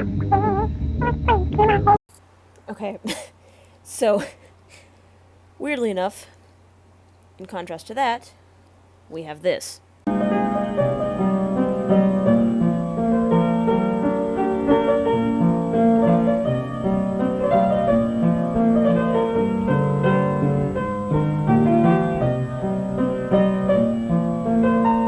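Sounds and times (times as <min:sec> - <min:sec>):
slow piano-like keyboard music: 0:10.1 - 0:25.0.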